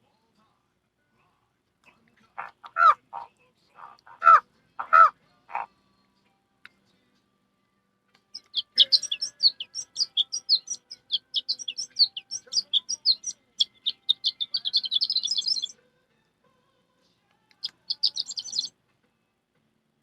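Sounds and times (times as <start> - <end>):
person imitating birdsong chirps: 8.4 - 15.7, 17.6 - 18.7.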